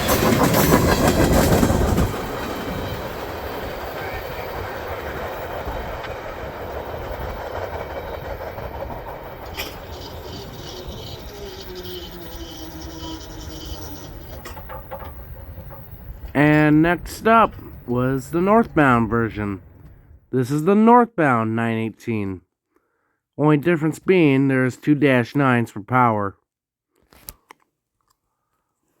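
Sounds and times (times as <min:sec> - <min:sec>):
train wheels clattering over rails: 0:00.0 - 0:18.3.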